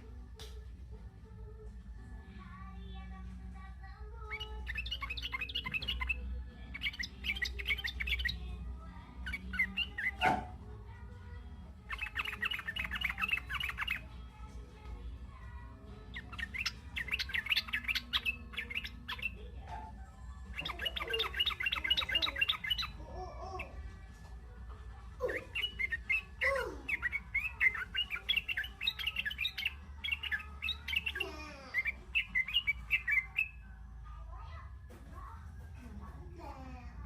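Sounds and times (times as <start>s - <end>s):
young bulbul chattering: 11.9s - 14.1s, 16.1s - 19.6s, 20.5s - 23.7s, 25.2s - 33.5s.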